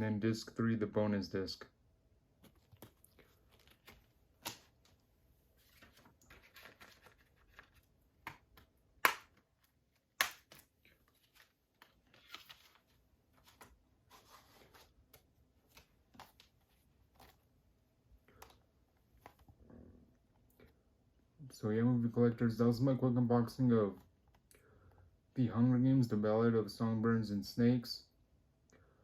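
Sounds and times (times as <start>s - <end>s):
packaging rustling: 5.6s - 15.0s.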